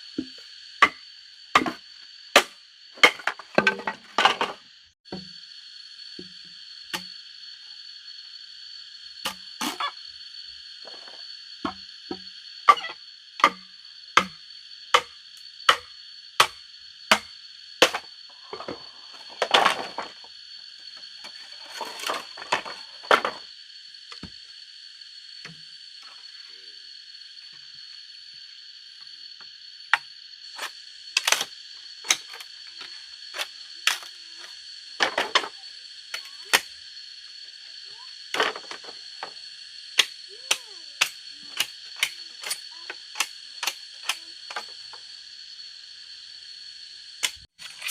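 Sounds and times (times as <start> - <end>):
sharp strikes on wood: 11.6 - 18.1.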